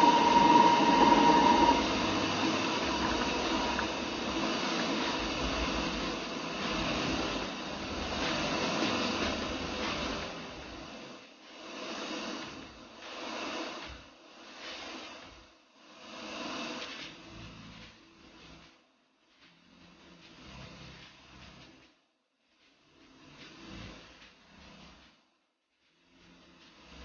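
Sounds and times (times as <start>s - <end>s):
hissing machine noise: 0.0s - 13.8s.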